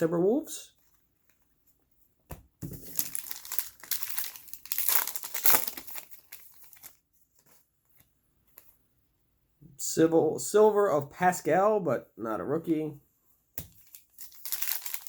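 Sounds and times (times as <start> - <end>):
card pack wrapper tearing: 2.8 - 7.0, 13.8 - 15.0.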